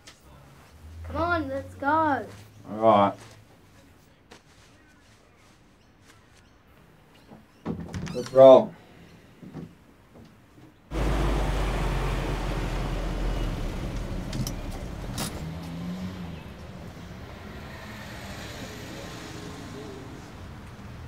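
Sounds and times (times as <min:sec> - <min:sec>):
car engine running: 0:10.9 - 0:19.1.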